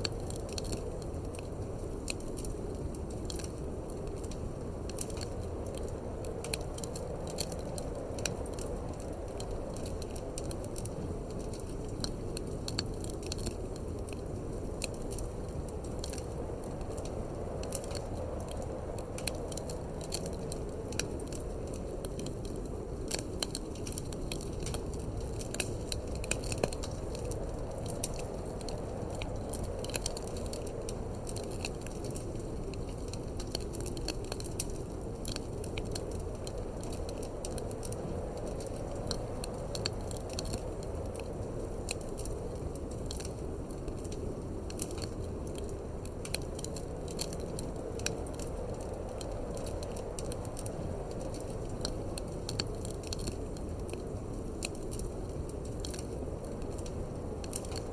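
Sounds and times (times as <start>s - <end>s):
low rumble of wind: 0.0s - 57.9s
wood fire crackling: 0.0s - 57.9s.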